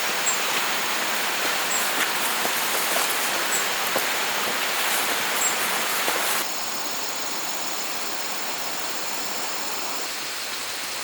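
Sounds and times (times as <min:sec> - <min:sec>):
dull even hiss: 0:00.0 - 0:06.5
rushing water: 0:00.0 - 0:06.5.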